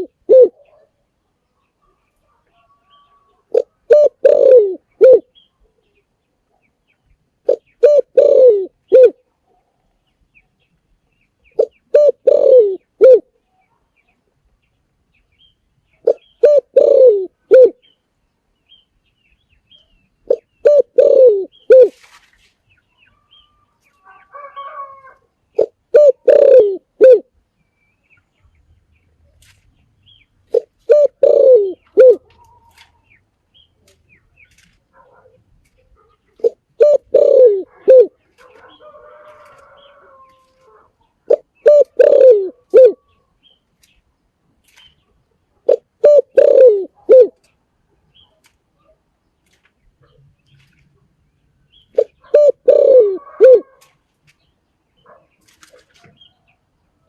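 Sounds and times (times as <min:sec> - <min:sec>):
dove cooing: 0:00.0 - 0:00.9, 0:02.6 - 0:05.3, 0:07.4 - 0:09.2, 0:11.6 - 0:13.3, 0:16.0 - 0:17.8, 0:20.2 - 0:22.0, 0:24.1 - 0:27.3, 0:30.5 - 0:33.0, 0:36.3 - 0:43.2, 0:45.6 - 0:47.5, 0:51.9 - 0:54.0
faint soft dove calls: 0:00.0 - 0:00.9, 0:01.8 - 0:05.3, 0:07.4 - 0:09.3, 0:11.6 - 0:13.3, 0:16.0 - 0:17.9, 0:20.2 - 0:22.4, 0:23.0 - 0:27.3, 0:30.5 - 0:33.2, 0:33.8 - 0:43.3, 0:45.6 - 0:47.6, 0:51.9 - 0:54.0.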